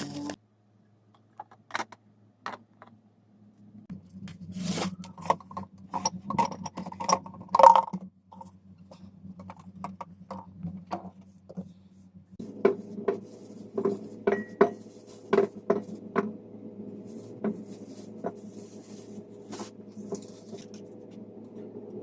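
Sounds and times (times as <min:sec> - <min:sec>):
steady low hum: 0:03.2 - 0:22.0.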